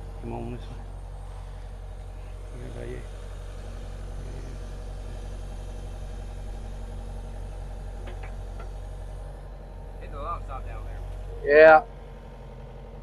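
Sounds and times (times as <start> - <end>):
engine idling: 0.0 - 13.0
light knocks: 8.0 - 8.8.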